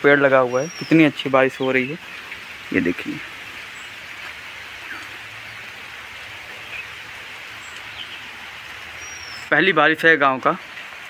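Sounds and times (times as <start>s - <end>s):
steady rain falling: 0.0s - 11.0s
faint bird chirps: 4.8s - 5.3s, 9.0s - 9.5s.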